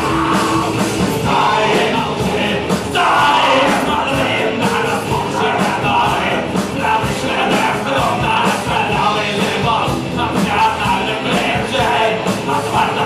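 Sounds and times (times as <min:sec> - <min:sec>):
person singing: 0:00.0 - 0:13.0
punk rock band playing: 0:00.0 - 0:13.0
steady drum beat: 0:00.0 - 0:13.0.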